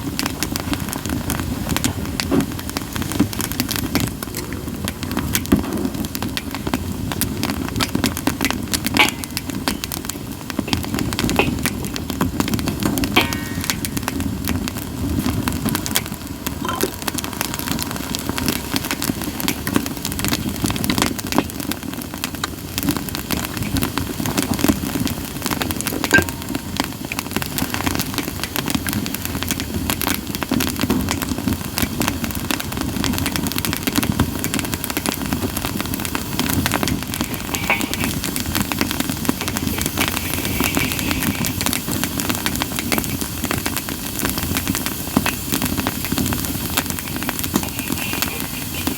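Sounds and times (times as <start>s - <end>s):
campfire crackling and popping: 0.0s - 48.9s
low rush of flames: 0.0s - 48.9s
hissing whistle from wood: 34.6s - 48.9s.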